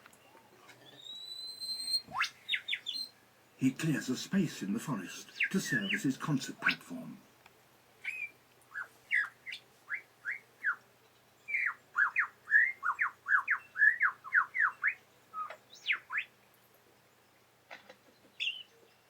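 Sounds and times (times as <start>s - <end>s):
lyrebird singing whistled notes: 0.9s - 3.2s, 5.2s - 6.2s, 8.0s - 10.8s, 11.4s - 16.3s, 18.4s - 18.7s.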